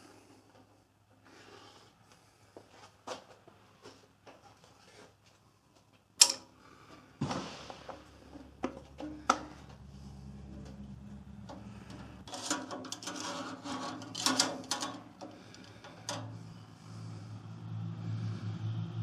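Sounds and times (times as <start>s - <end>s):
metal tools clicking and knocking: 6.2s - 6.5s, 11.4s - 16.6s
steady low hum: 6.2s - 19.0s.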